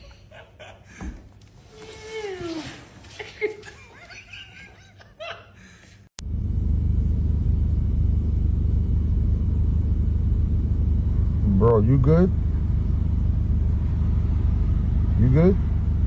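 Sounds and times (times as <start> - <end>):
bursts of laughter: 3.1 - 6.0
loud low rumble: 6.2 - 16.0.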